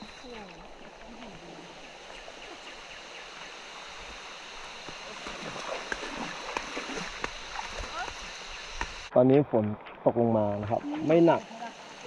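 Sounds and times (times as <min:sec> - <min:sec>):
shallow stream rushing: 0:00.0 - 0:09.1.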